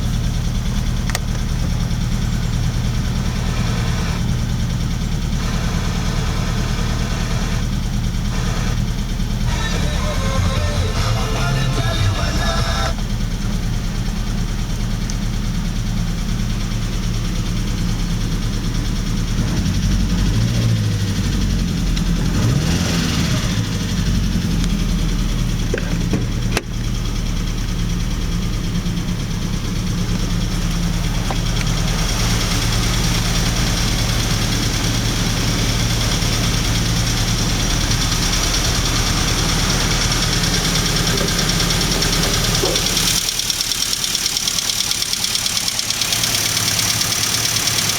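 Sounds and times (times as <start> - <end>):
car engine idling: 0.0 - 47.9.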